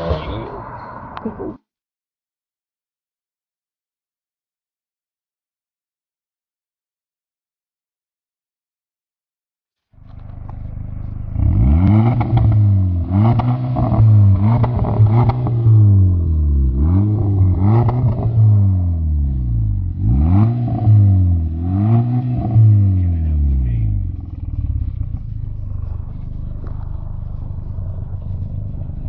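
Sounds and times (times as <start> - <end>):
car engine revving: 10.0 - 29.0
exhaust crackles: 10.0 - 29.0.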